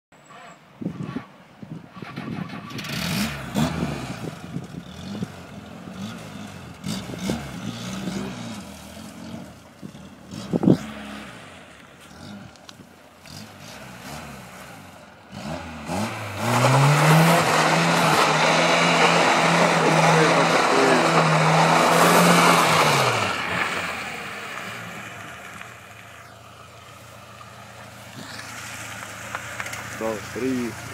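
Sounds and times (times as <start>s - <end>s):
car engine revving: 2.1s - 30.9s
tyres spinning and scrubbing: 16.1s - 30.9s.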